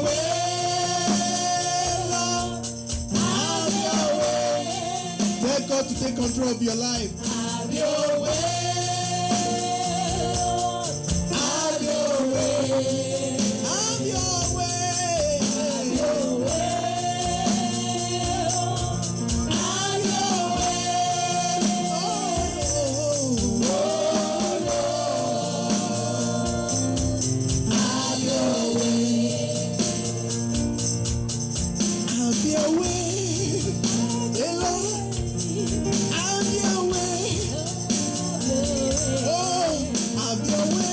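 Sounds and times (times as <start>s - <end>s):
rattling percussion beat: 0.0s - 40.9s
voices singing gospel music: 0.0s - 40.9s.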